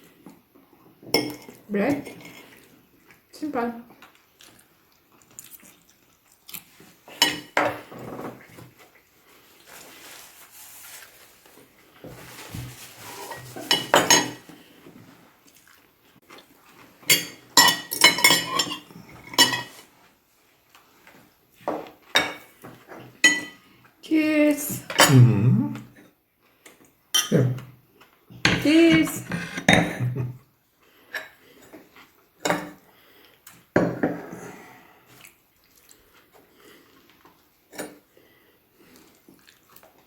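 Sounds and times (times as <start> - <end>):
cutlery clinking on plates: 7.1 - 8.3, 13.3 - 14.4, 17.0 - 19.8, 21.8 - 23.6, 32.4 - 32.8.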